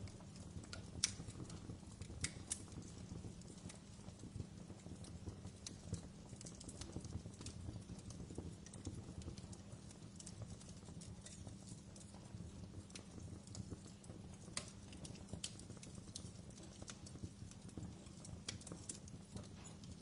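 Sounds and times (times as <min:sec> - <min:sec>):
low rumble of flames: 0:00.0 - 0:20.0
wood fire crackling: 0:00.0 - 0:20.0.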